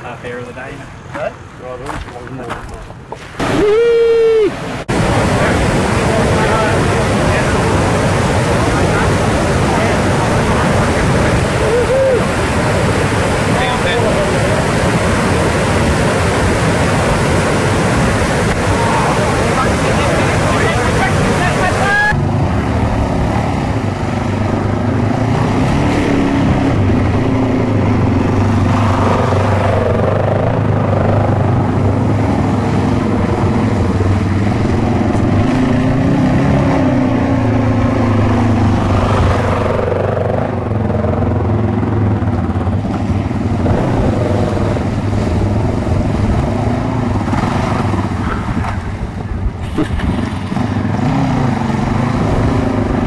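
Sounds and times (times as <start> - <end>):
engine running loudly: 4.8 - 53.0.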